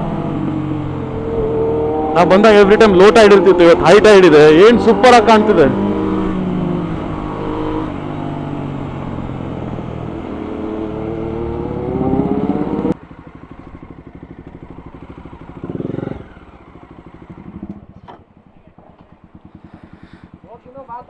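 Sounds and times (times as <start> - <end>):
motorcycle engine revving: 0.0 - 21.0
quiet engine running: 12.6 - 21.0.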